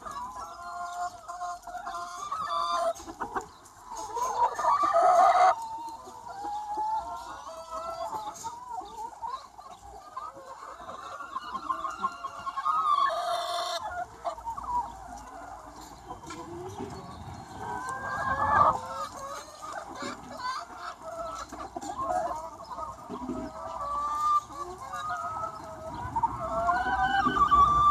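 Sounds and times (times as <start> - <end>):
hens clucking: 0.0 - 27.9.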